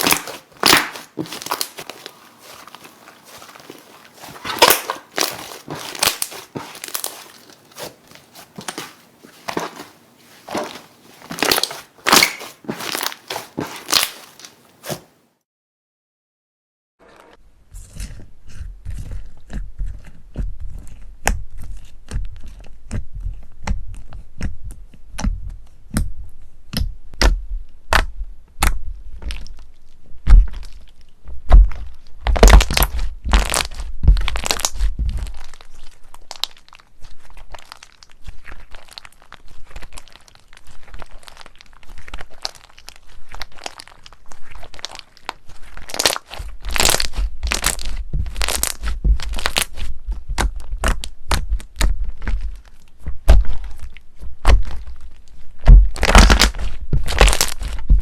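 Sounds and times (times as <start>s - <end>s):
crunchy slime squeezed by hand: 0.0s - 15.1s, 31.5s - 58.0s.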